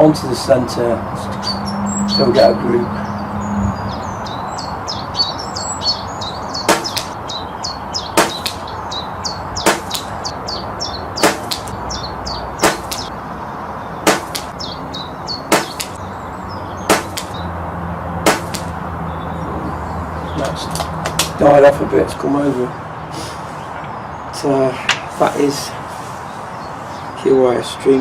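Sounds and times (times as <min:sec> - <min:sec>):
small birds chirping: 0:00.0 - 0:17.6, 0:18.2 - 0:28.0
wind noise: 0:03.0 - 0:14.9
sharp repeating click: 0:06.7 - 0:07.2, 0:08.2 - 0:08.7, 0:09.6 - 0:10.3, 0:11.2 - 0:11.8, 0:12.6 - 0:13.1, 0:14.0 - 0:14.6, 0:15.5 - 0:16.0, 0:16.9 - 0:17.4, 0:18.3 - 0:18.7.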